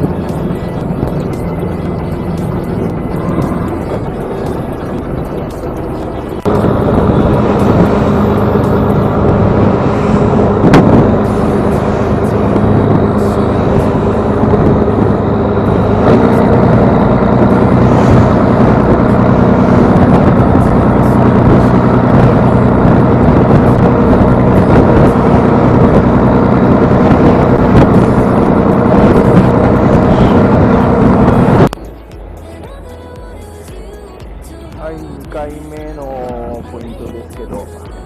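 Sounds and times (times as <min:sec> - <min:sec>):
boat engine running: 0:00.0 - 0:38.0.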